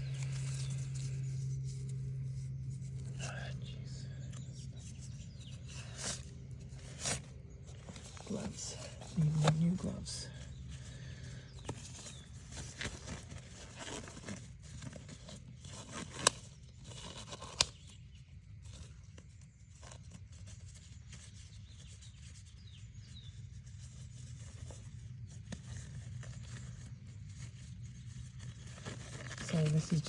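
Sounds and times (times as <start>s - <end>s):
steady low hum: 0.0s - 15.6s
hands rustling materials: 0.0s - 30.0s.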